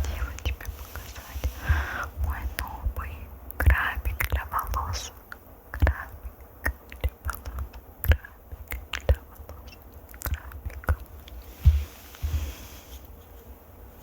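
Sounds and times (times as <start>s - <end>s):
low thumps: 10.6s - 12.6s.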